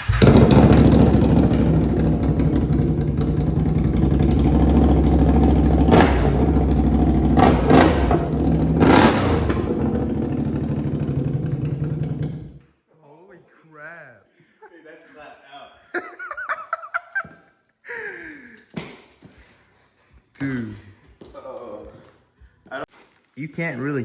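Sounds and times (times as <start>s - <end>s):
loud engine running and revving: 0.0s - 12.6s.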